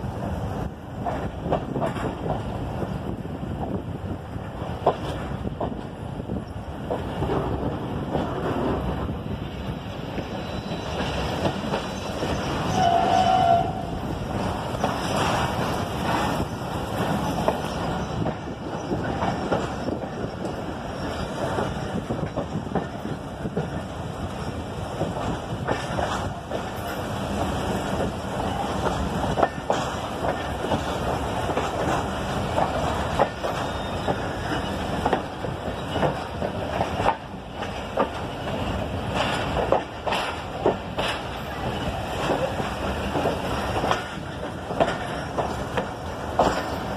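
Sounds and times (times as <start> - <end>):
train wheels rumbling and rattling: 0.0 - 46.9
clicks over rail joints: 28.0 - 46.9.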